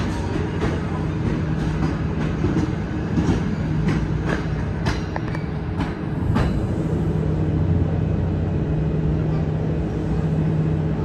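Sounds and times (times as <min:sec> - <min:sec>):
wheels clacking over rail joints: 0:00.0 - 0:06.7.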